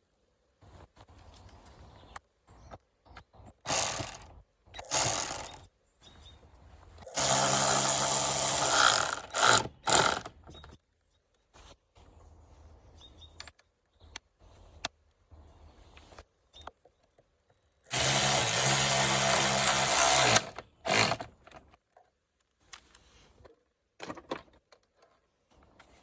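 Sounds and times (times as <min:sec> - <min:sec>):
power drill whining: 0:03.7 - 0:05.6, 0:07.0 - 0:10.3, 0:17.8 - 0:21.3
light clicks and handling noise: 0:21.4 - 0:26.0.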